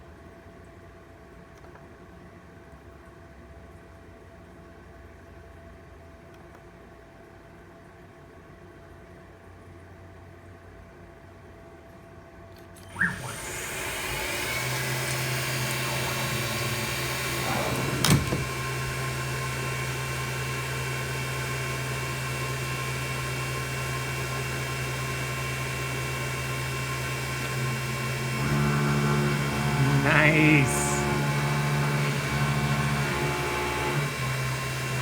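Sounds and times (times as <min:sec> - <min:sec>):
milling machine humming: 0:12.9 - 0:35.0.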